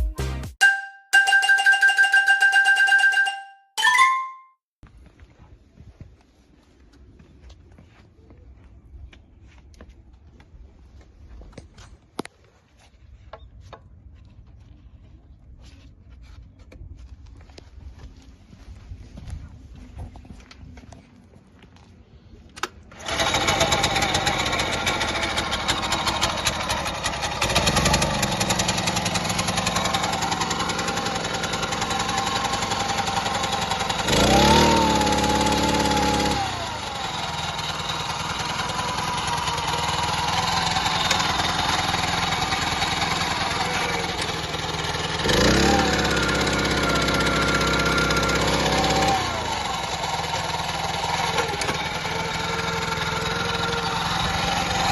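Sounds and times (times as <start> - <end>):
small petrol engine revving: 22.9 - 54.9.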